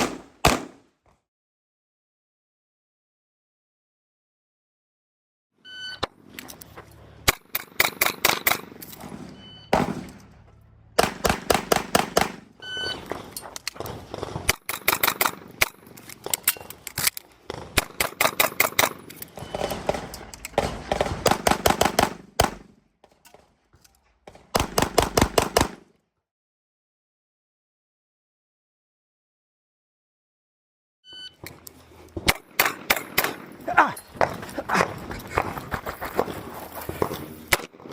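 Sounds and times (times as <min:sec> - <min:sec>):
rapid pistol shots: 0:00.0 - 0:00.8, 0:11.0 - 0:12.5, 0:20.6 - 0:22.8, 0:24.6 - 0:25.9
short beep: 0:05.6 - 0:06.1, 0:31.0 - 0:31.4.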